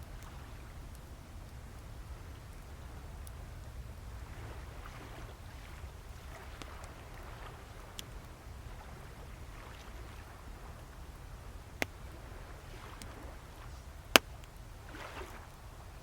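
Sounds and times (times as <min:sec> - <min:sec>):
bonfire crackling and popping: 0:10.7 - 0:16.0.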